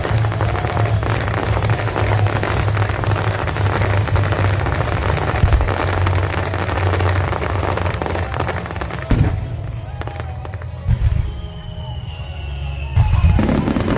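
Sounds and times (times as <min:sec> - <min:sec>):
fireworks crackling and bursting: 0:00.0 - 0:13.9.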